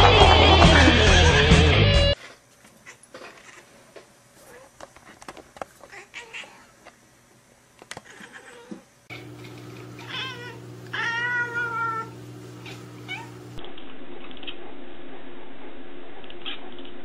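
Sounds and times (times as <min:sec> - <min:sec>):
cat meowing: 0:05.9 - 0:06.7, 0:08.0 - 0:09.3, 0:10.0 - 0:13.4.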